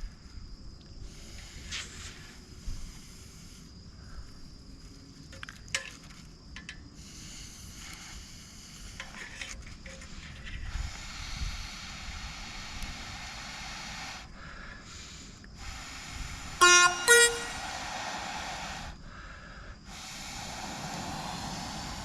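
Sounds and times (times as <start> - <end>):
person blowing on campfire: 10.7 - 14.3, 14.9 - 19.0, 19.8 - 22.0
short tooting tones: 16.6 - 17.7.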